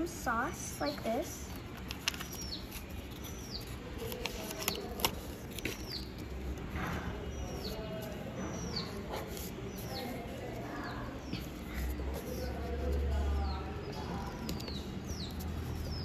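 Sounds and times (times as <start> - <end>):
paper rustling and clicks: 1.6 - 8.2
bird chirping: 2.1 - 4.1, 13.3 - 16.0.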